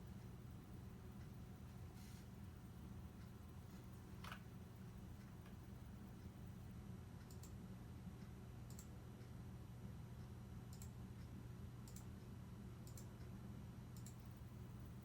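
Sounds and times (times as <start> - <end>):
low steady hum: 0.0 - 15.0
faint sharp clicks: 11.9 - 12.1, 14.0 - 14.3.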